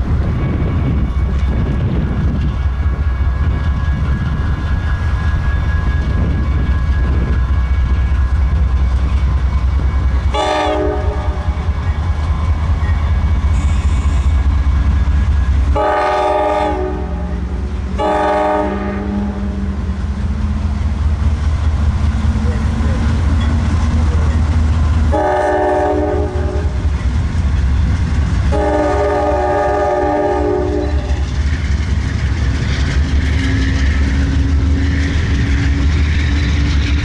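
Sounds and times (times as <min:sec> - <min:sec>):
train rumbling by: 0:00.0 - 0:37.0
locomotive horn blasts: 0:10.3 - 0:11.6, 0:15.7 - 0:19.6, 0:25.1 - 0:26.8, 0:28.5 - 0:31.2.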